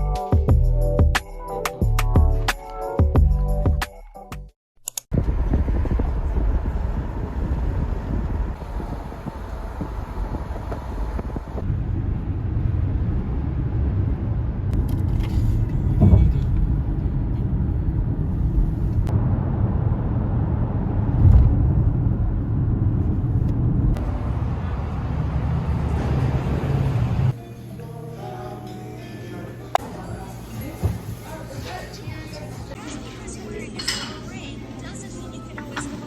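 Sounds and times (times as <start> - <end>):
moving vehicle rumble: 5.1 - 27.4
vehicle bumps: 14.8 - 17.0.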